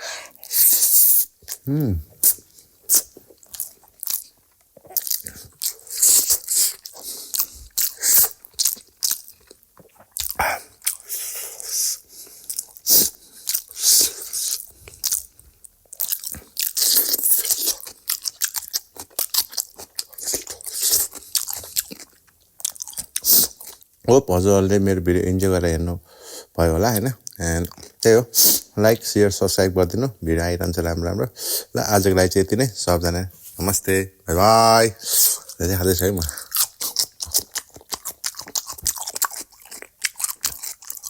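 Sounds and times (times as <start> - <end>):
person chewing crunchy food: 0.3 - 24.0, 35.0 - 41.0.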